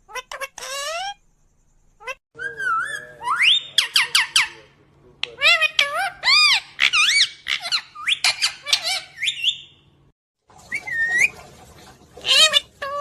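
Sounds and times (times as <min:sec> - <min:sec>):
parrot squeaky chirps: 0:00.1 - 0:01.2, 0:02.0 - 0:09.9, 0:12.2 - 0:13.0.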